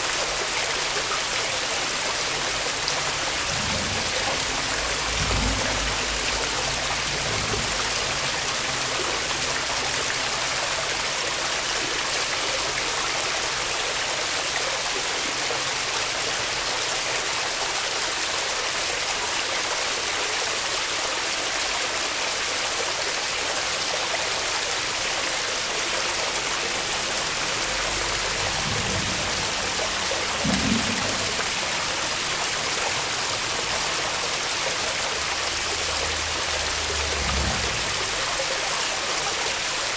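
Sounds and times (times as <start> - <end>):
waterfall rushing: 0.0 - 39.9
low thump: 30.3 - 31.9.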